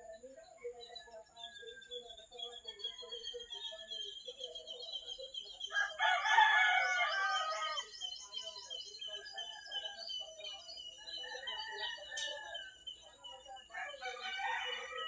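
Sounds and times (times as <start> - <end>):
small birds chirping: 0.0 - 15.0
rooster crowing: 5.7 - 7.9, 13.7 - 15.0.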